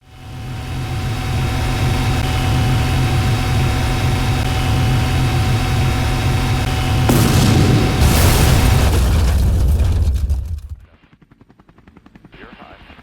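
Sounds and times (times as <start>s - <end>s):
faint steady whine: 0.0s - 8.0s
heavy engine rumbling: 1.9s - 10.8s.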